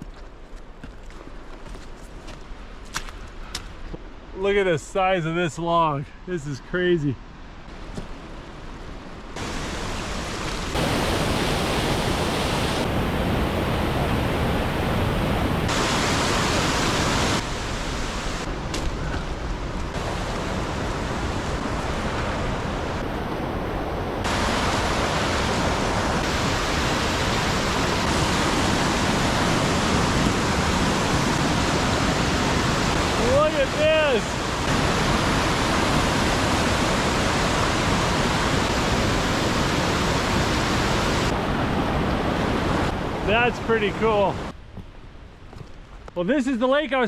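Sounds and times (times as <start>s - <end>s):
rushing water: 7.6s - 44.6s.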